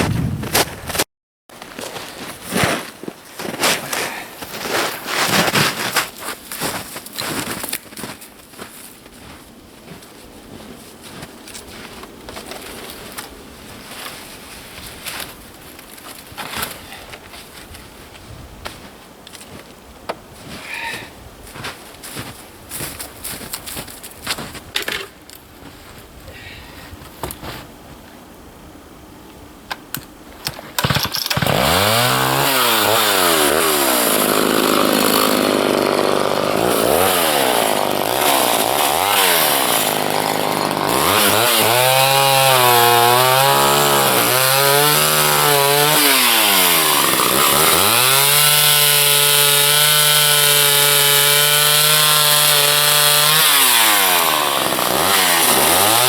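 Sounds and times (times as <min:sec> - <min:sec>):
chainsaw starting and revving: 0:30.5 - 0:56.0.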